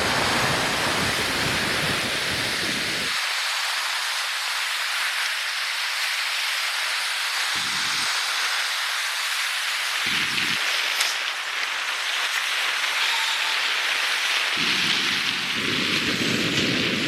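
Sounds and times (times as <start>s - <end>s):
storm wind hissing: 0.0s - 3.2s, 7.5s - 8.3s, 10.0s - 10.7s, 14.5s - 17.0s
wind gusts buffeting microphone: 0.0s - 3.2s, 10.0s - 10.6s, 14.6s - 17.0s.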